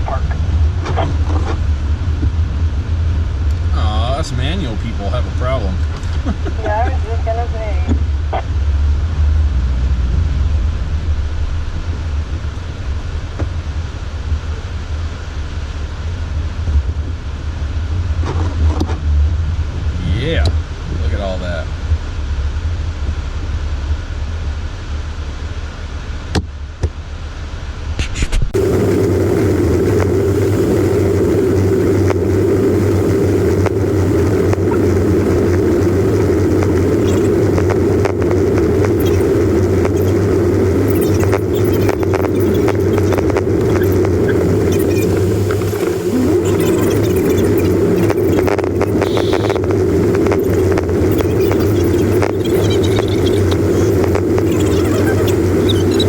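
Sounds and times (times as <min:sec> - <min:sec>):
road noise: 0:00.0 - 0:24.3, 0:28.6 - 0:56.0
car engine rumble from inside: 0:00.0 - 0:25.7
vehicle engine drone: 0:00.0 - 0:27.9, 0:28.6 - 0:56.0.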